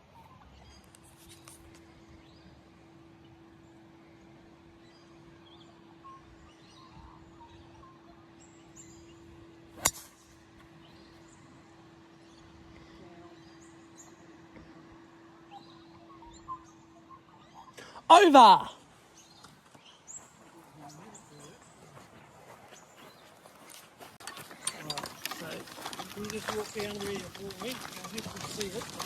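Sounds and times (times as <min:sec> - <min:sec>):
golf club striking ball: 0:09.8 - 0:10.2.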